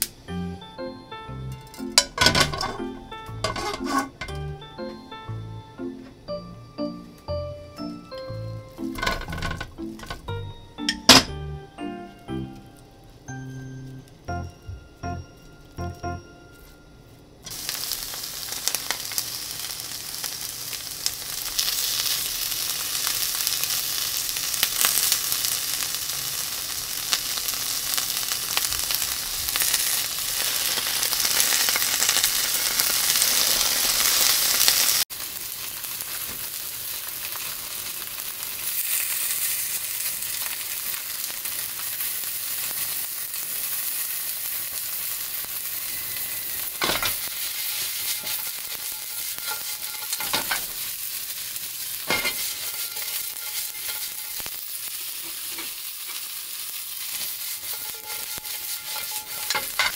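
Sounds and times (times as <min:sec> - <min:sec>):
oil popping and crackling: 0:08.8 - 0:10.2, 0:17.5 - 0:45.9, 0:46.6 - 0:59.9
tofu sizzling in a frying pan: 0:17.5 - 0:59.9.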